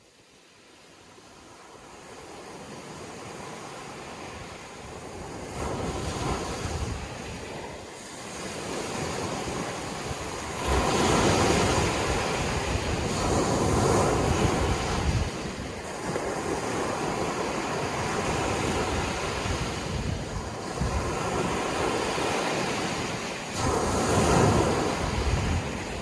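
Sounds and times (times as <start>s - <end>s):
sea waves breaking on shore: 0.0s - 26.0s.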